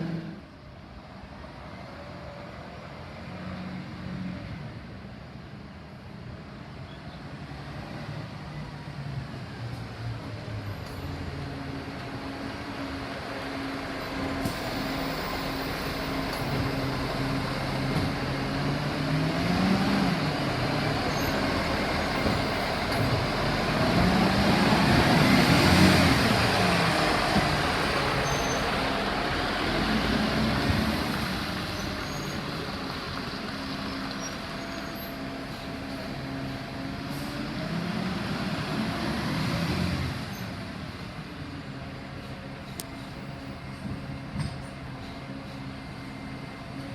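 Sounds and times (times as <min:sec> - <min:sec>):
garbage truck diesel engine revving: 0:12.2 - 0:40.3.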